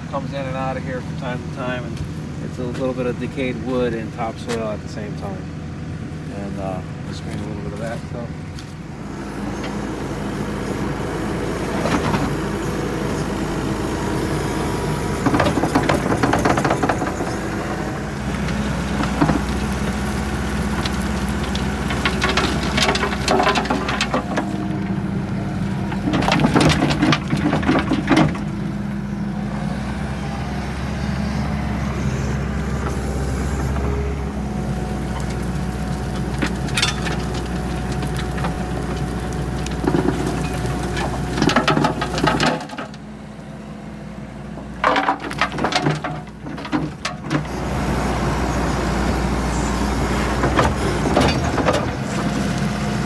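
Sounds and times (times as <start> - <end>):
skid steer engine running: 0.0 - 53.0
screening bucket rattling: 20.8 - 24.6, 25.9 - 28.5, 39.7 - 42.9, 44.7 - 47.6.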